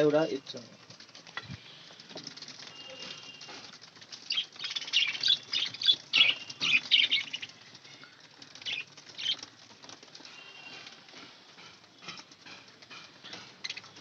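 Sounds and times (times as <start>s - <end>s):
sharp bird calls: 2.6s - 7.6s
budgerigars chirping and chattering: 4.2s - 7.6s, 8.6s - 9.5s, 13.3s - 14.0s.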